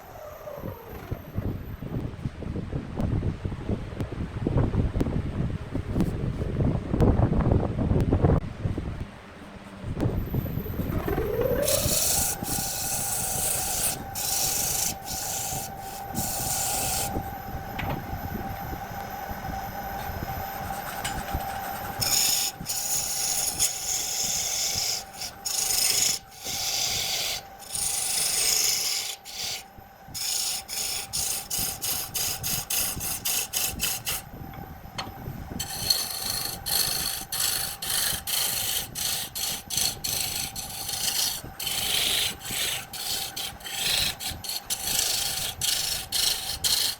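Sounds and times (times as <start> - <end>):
wood lathe motor whine: 0.0 - 2.2, 10.0 - 46.9
turning tool cutting wood: 10.7 - 17.5, 20.4 - 34.3, 35.6 - 46.9.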